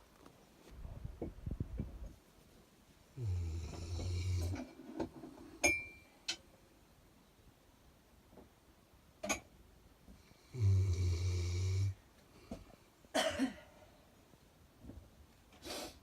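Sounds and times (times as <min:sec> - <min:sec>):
dog snoring: 0:03.2 - 0:04.8, 0:10.3 - 0:12.0.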